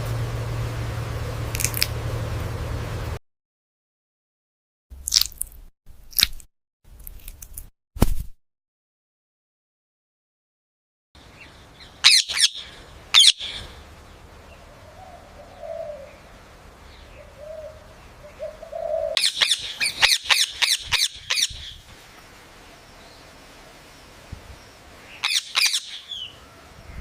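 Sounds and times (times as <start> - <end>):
parrot chirping: 11.3 - 13.8, 17.0 - 21.8, 24.6 - 26.4.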